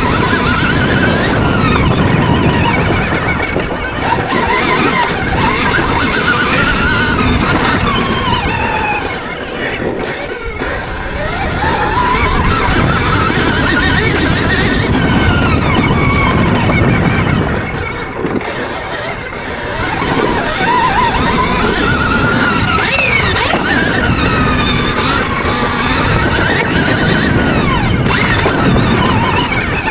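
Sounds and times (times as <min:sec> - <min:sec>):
electric motorbike motor whining: 0:00.0 - 0:29.9.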